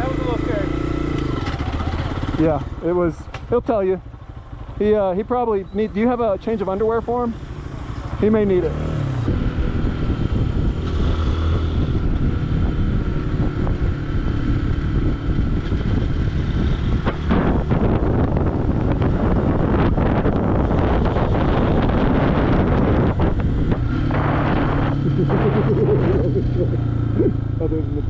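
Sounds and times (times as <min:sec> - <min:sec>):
motorcycle engine running: 0:00.0 - 0:28.0
wind buffeting microphone: 0:07.1 - 0:28.0.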